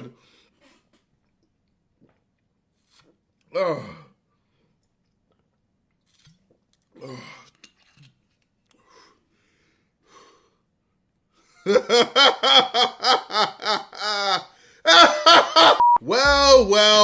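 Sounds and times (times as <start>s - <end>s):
man laughing rapidly: 11.6s - 15.8s.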